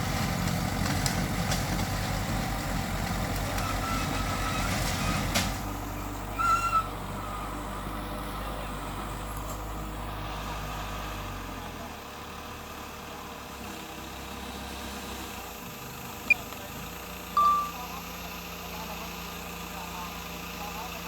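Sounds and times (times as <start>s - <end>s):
heavy diesel engine running: 0.0s - 21.0s
short high squeal: 6.4s - 7.0s.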